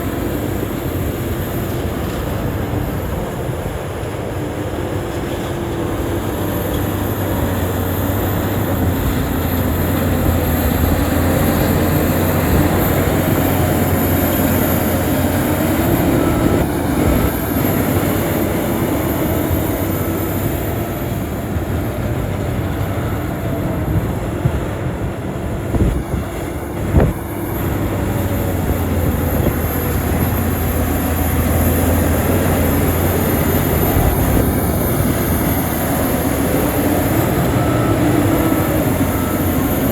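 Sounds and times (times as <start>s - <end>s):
bulldozer diesel engine: 0.0s - 39.9s.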